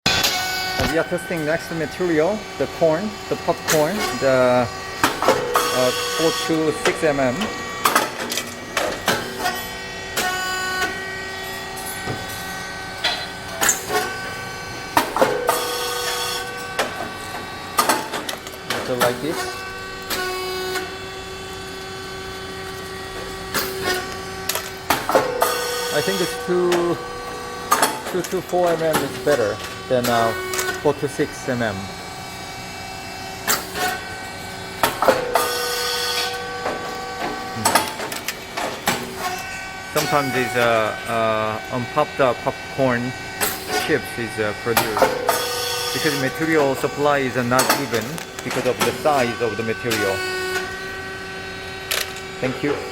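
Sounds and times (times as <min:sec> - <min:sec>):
machine whining hum: 0:00.1 - 0:52.9
machine knock: 0:14.9 - 0:15.8.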